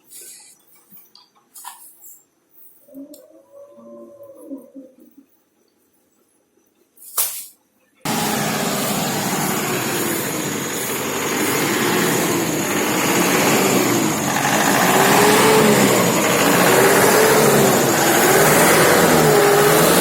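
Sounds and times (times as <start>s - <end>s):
truck engine running: 8.1s - 20.0s.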